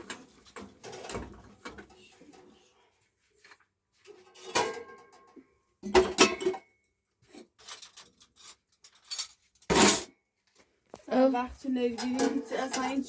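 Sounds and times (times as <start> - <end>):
metal pots clattering: 0.0 - 2.6, 4.1 - 10.1, 11.8 - 13.0.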